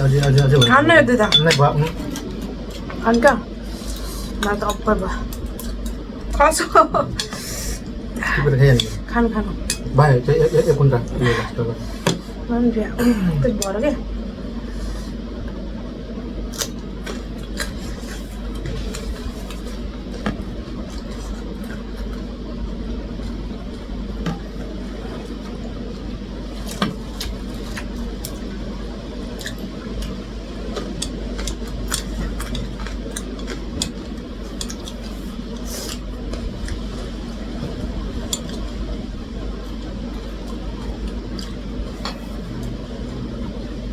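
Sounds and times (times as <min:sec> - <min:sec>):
steady low hum: 0:00.0 - 0:43.9
food being chewed: 0:16.5 - 0:43.3.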